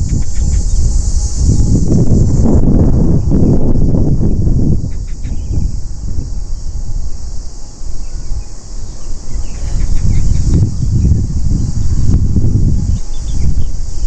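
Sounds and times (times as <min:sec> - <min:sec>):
high-pitched insect buzz: 0:00.0 - 0:14.0
wind buffeting microphone: 0:00.0 - 0:14.0
faint bird chirps: 0:07.7 - 0:12.2, 0:12.8 - 0:14.0.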